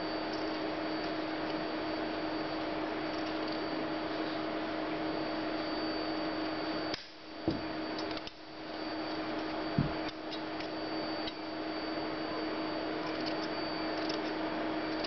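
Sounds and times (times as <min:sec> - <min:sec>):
steady background hum: 0:00.0 - 0:15.0
soft low thumps: 0:07.4 - 0:07.7, 0:09.7 - 0:10.1.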